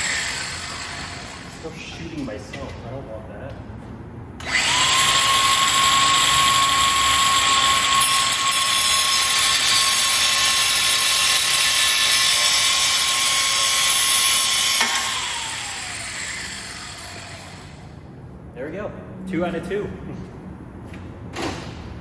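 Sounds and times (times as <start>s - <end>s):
grinder cutting metal: 0.0s - 1.6s, 4.4s - 17.8s.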